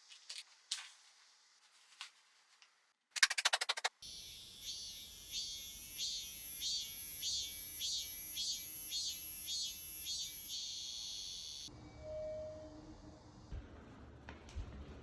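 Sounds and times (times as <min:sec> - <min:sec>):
cicadas singing: 0:04.0 - 0:11.7.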